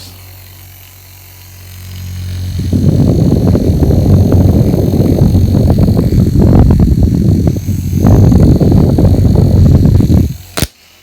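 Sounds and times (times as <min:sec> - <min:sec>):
handheld fan motor whirr: 0:00.0 - 0:11.0.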